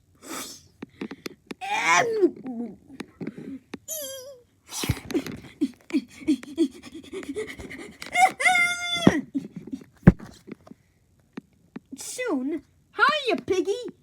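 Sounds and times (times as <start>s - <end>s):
person high-pitched cry: 1.6s - 2.9s, 3.9s - 4.4s, 5.0s - 9.8s
person panting huffs: 4.8s - 8.1s.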